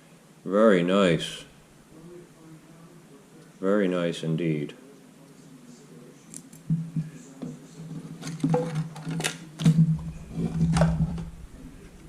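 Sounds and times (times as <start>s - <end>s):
steady low hum: 0.0s - 8.2s, 9.7s - 12.0s
plastic parts clicking: 8.2s - 9.8s.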